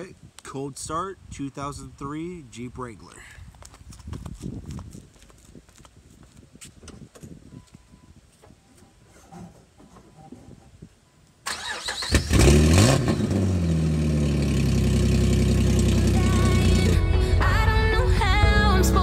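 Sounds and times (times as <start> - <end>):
car engine revving and idling: 12.2 - 17.1.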